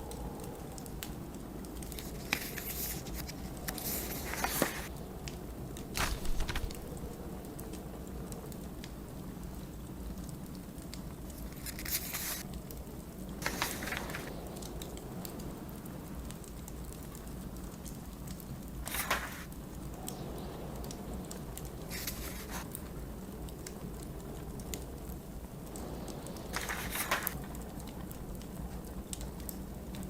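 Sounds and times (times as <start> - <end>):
blizzard wind rumble: 0.0 - 30.0
wood fire crackling: 0.0 - 30.0
book pages turning: 1.8 - 4.9, 5.9 - 7.0, 11.4 - 12.4, 13.4 - 14.4, 18.8 - 19.5, 21.9 - 22.7, 26.5 - 27.4.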